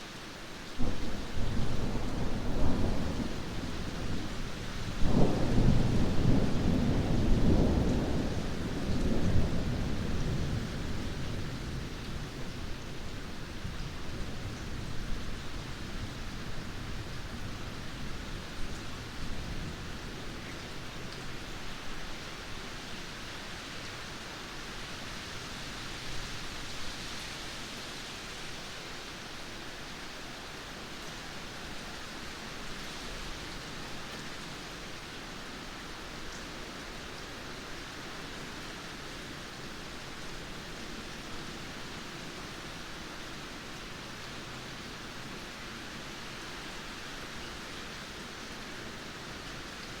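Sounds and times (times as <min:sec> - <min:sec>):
heavy rain: 0:00.0 - 0:50.0
low thunder rumble: 0:00.8 - 0:12.4.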